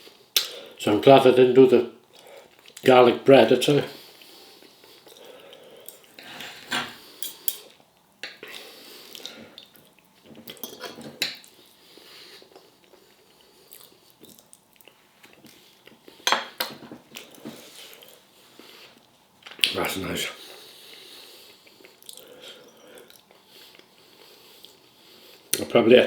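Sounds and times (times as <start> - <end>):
cutlery clinking on a plate: 10.5 - 11.4, 16.2 - 16.8.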